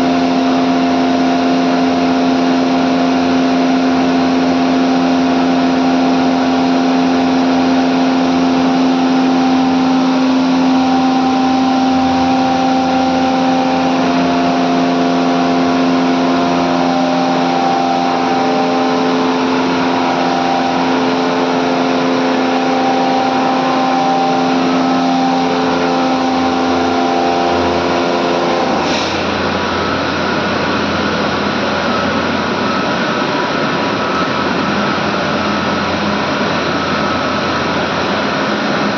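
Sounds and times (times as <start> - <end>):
air compressors humming: 8.9 - 36.5
loud rushing hiss: 25.2 - 30.8.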